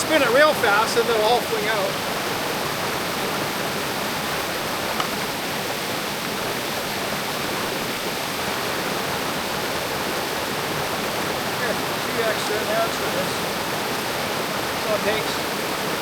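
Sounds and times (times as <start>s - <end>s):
creek water rushing: 0.0s - 16.0s.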